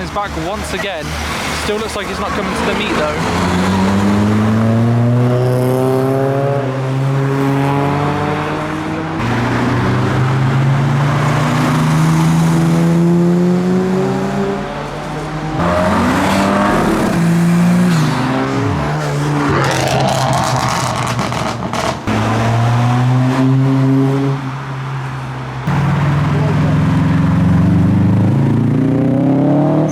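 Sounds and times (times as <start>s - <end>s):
cars driving past: 0.0s - 29.9s.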